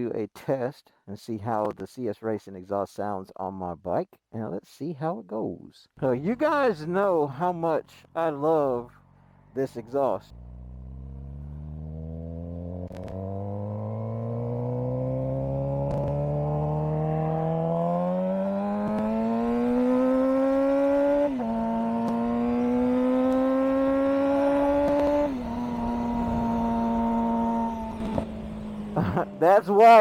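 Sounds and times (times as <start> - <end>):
motorcycle engine accelerating: 8.5 - 30.0.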